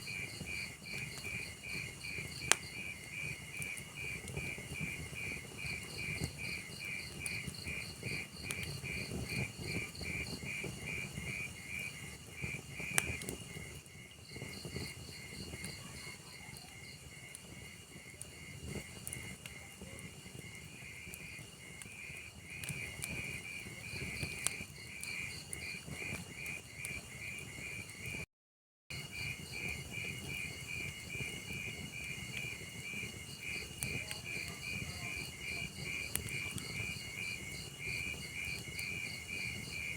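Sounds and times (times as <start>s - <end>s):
log fire crackling and popping: 0.0s - 28.2s, 29.0s - 39.9s
crickets chirping: 28.9s - 39.9s.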